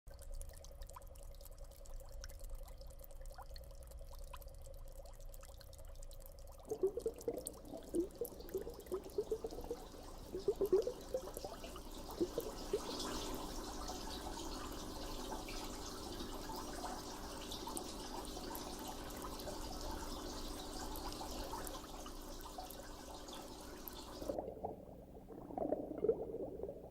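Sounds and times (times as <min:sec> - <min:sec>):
water bubbling gurgles: 0:00.1 - 0:26.9
water pouring and dripping: 0:00.1 - 0:26.9.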